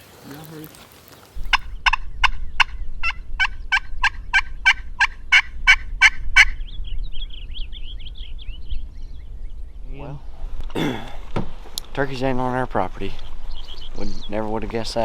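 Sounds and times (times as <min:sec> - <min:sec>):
wild turkey calling: 0:00.3 - 0:12.5
high bird chirps: 0:01.3 - 0:10.7, 0:13.1 - 0:14.8
low steady rumble: 0:01.4 - 0:15.0.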